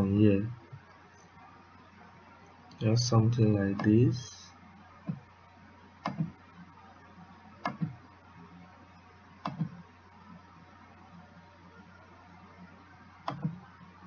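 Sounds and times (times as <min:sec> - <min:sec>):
faint low hum: 0:00.0 - 0:14.0
computer mouse clicks: 0:06.0 - 0:06.4, 0:07.6 - 0:08.0, 0:09.4 - 0:09.8, 0:13.2 - 0:13.6.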